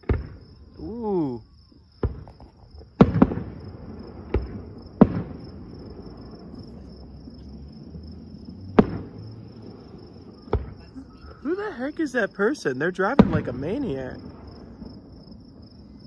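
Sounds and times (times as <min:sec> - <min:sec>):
distant firework bangs: 0:00.0 - 0:01.3, 0:01.9 - 0:16.0
crickets chirping: 0:00.0 - 0:16.0.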